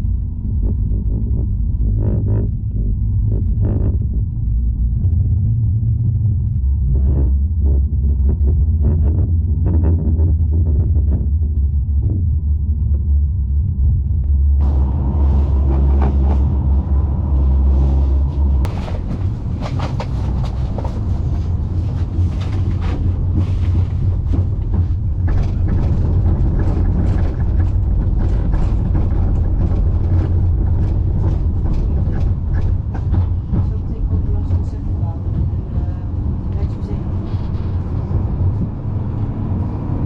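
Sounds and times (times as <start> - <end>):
low motor hum: 0.0 - 40.0
tram deep rumble: 0.0 - 40.0
wheels knocking and rattling on track: 13.6 - 40.0.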